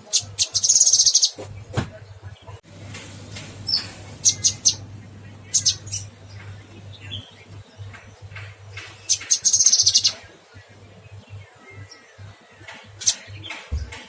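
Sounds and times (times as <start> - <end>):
songbird chirping and trilling: 0.0 - 14.0.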